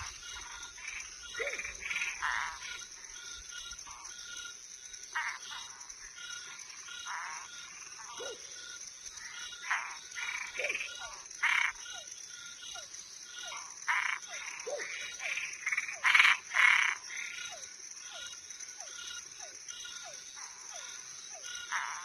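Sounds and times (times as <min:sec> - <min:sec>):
crickets trilling: 0:00.0 - 0:22.0
frogs croaking: 0:00.0 - 0:22.0
loud frog calls: 0:00.0 - 0:22.0
repeated falling frog call: 0:00.0 - 0:22.0.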